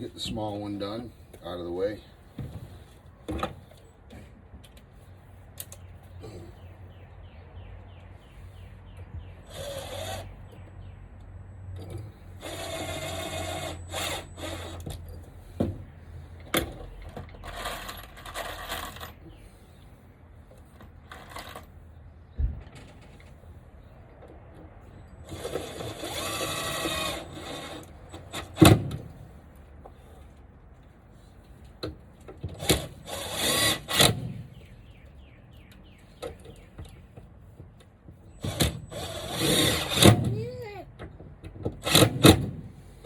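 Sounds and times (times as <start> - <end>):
power drill running: 12.4 - 14.8, 25.3 - 27.9, 32.7 - 34.1, 38.5 - 40.1.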